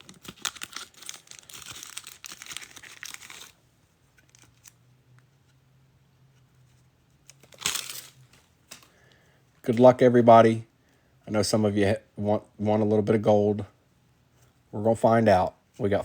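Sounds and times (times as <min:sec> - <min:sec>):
wrapper tearing and crinkling: 0:00.0 - 0:03.6, 0:04.2 - 0:04.8, 0:07.3 - 0:08.9
faint low hum: 0:00.0 - 0:16.0.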